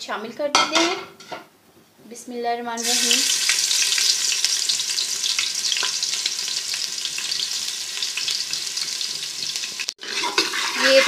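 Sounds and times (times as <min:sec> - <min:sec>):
paste sizzling in hot oil: 0:02.8 - 0:11.0.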